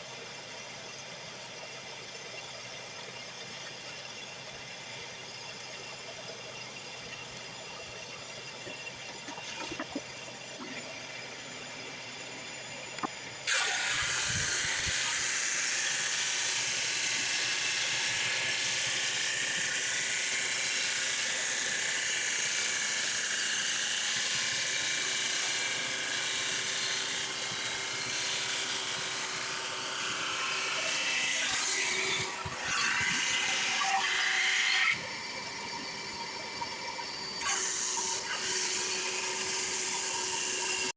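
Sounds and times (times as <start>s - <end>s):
drum sander and shop vac humming: 8.5s - 40.9s.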